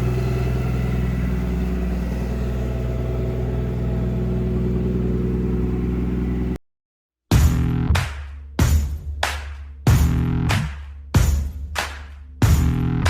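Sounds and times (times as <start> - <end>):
car engine idling: 0.0 - 6.6.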